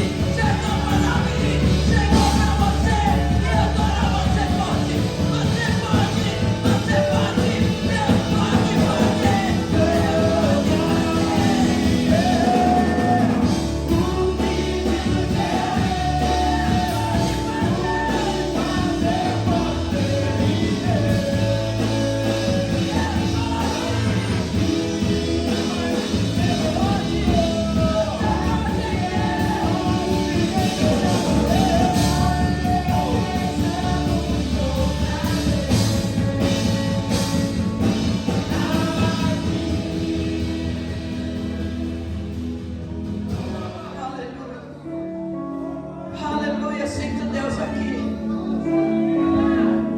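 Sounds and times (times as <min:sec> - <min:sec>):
person singing: 0:00.0 - 0:42.3, 0:43.3 - 0:49.9
worship band playing: 0:00.0 - 0:49.9.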